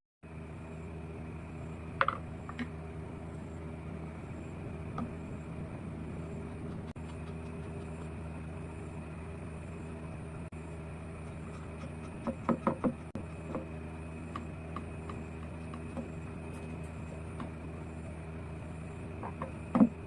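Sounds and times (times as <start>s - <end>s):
low mechanical hum: 0.2s - 20.0s
sharp knocks: 12.2s - 13.7s.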